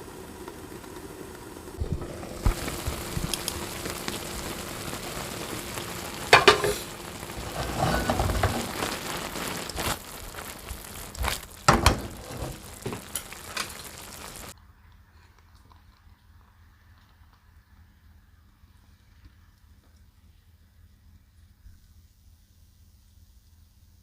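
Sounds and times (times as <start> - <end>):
vegetables sizzling in a pan: 0.0 - 14.6.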